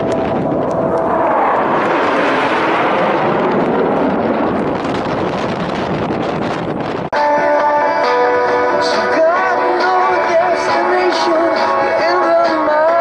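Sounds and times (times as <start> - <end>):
fighter jet passing by: 0.0 - 7.1.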